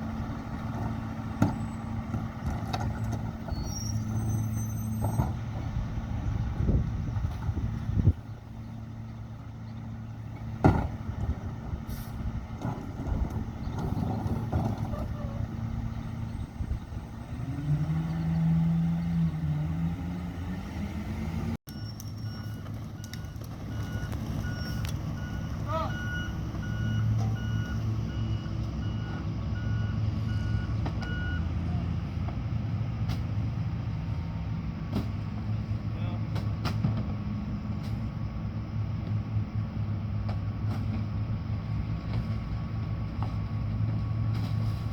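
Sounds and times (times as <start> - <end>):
garbage truck engine running: 0.0 - 19.4
diesel engine rumble: 0.0 - 44.9
truck backup alarm beeping: 21.7 - 31.8.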